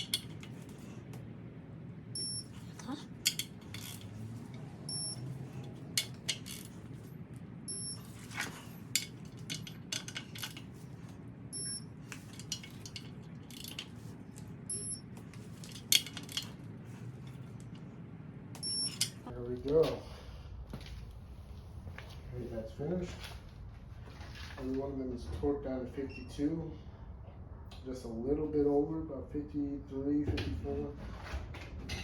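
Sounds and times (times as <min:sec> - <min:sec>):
low steady hum: 0:00.0 - 0:32.0
short high beeps: 0:02.2 - 0:02.5, 0:04.9 - 0:05.2, 0:07.7 - 0:08.1, 0:11.5 - 0:11.9, 0:14.7 - 0:15.0, 0:18.6 - 0:19.1.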